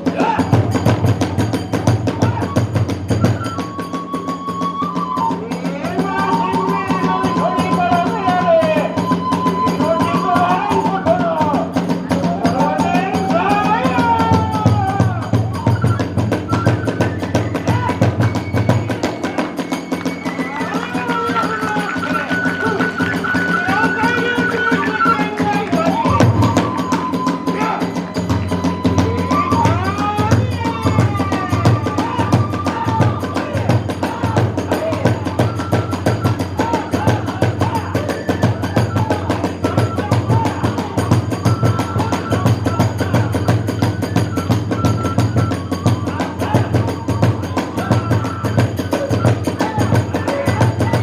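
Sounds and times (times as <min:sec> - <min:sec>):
drums beating fast rhythm: 0:00.0 - 0:51.0
wavering high melody: 0:01.0 - 0:51.0
hand cymbals clashing: 0:18.3 - 0:32.9.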